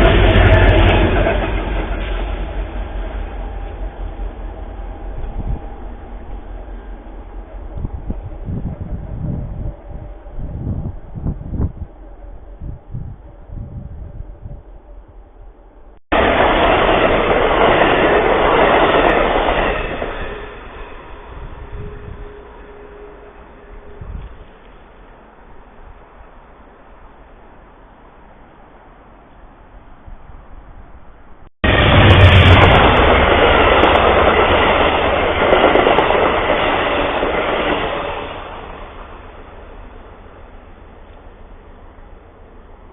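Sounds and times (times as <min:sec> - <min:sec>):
train wheels on rails: 0:00.0 - 0:42.9
wind noise on microphone: 0:03.4 - 0:15.6, 0:18.6 - 0:24.9.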